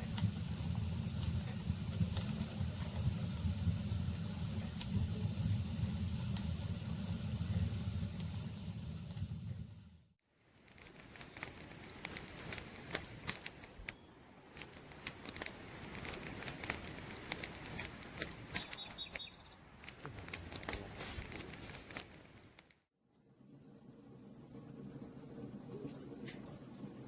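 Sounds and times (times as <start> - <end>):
campfire crackling and popping: 0.0 - 10.0, 10.6 - 13.9, 14.5 - 19.2, 19.8 - 22.8
faint high chirps: 17.6 - 19.6.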